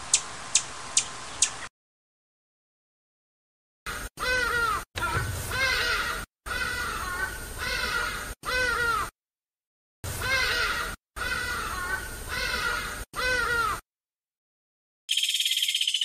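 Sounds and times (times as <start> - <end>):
animal calls rising and falling: 3.9 - 9.1, 10.2 - 13.8.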